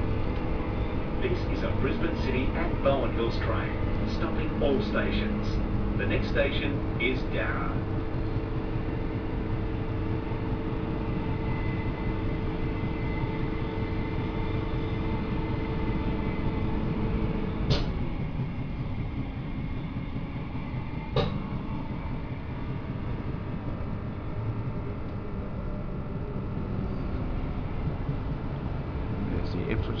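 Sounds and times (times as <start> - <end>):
train motor hum: 0.0 - 30.0
train running on track: 0.0 - 30.0
sharp clunk: 17.7 - 18.0, 21.2 - 21.4.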